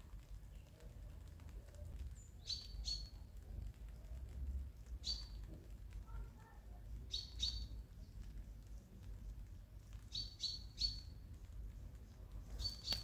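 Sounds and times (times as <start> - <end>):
small songbird chirping: 2.0 - 3.4, 4.9 - 5.5, 7.0 - 8.4, 9.4 - 13.0.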